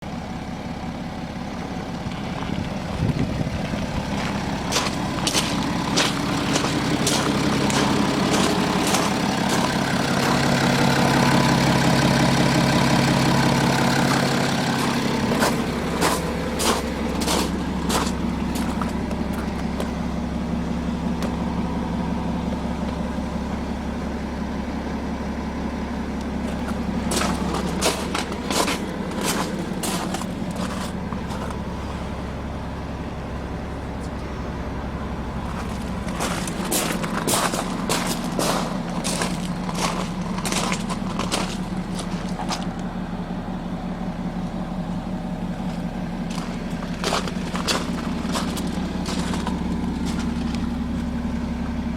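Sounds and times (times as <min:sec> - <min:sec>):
diesel engine idling: 0:00.0 - 0:51.9.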